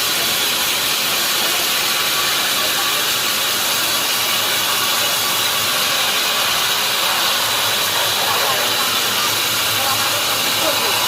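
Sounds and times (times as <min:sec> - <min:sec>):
sawmill machinery hissing: 0:00.0 - 0:11.0.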